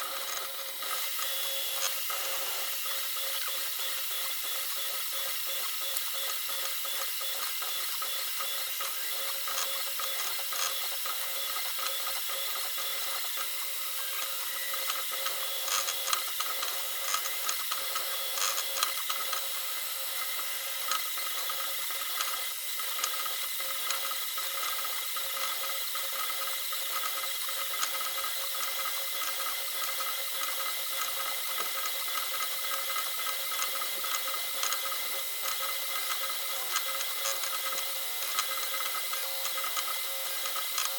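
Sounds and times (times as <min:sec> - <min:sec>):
stepper motors whining: 0:00.0 - 0:21.0.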